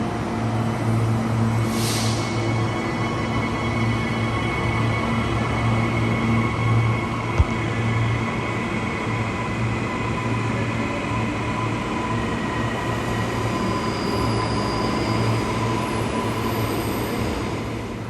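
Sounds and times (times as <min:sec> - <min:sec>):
electric train rumbling: 0:00.0 - 0:18.0
high wheel squeal: 0:12.7 - 0:18.0.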